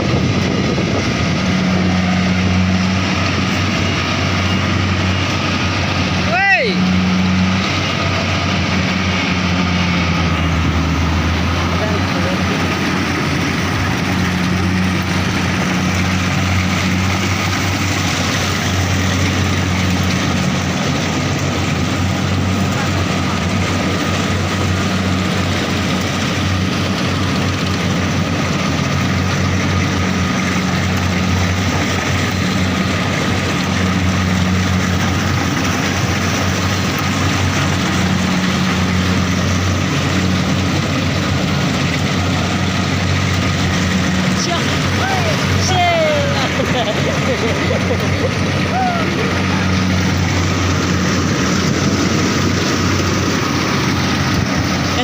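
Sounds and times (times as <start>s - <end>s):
combine harvester engine hum: 0.0s - 55.0s.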